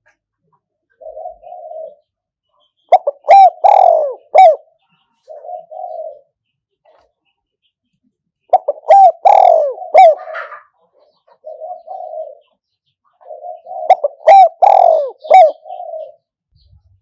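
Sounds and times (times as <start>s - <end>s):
dove cooing: 0.9s - 2.1s, 2.9s - 6.4s, 8.5s - 16.3s.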